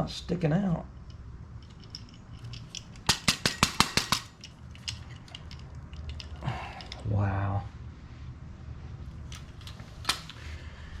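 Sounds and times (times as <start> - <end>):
sharp metallic clicks: 1.0 - 7.0.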